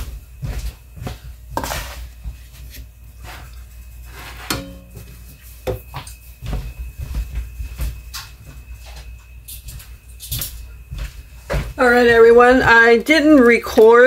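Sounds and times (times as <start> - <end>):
dishes knocking and clinking: 4.4 - 6.0.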